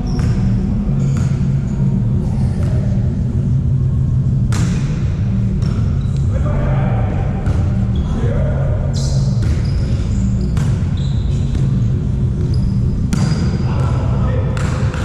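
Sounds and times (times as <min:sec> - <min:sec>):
low steady rumble: 0:00.0 - 0:14.8
players' voices: 0:06.2 - 0:10.5, 0:13.2 - 0:15.0
shoe squeaks on court: 0:08.9 - 0:11.8, 0:12.4 - 0:13.7.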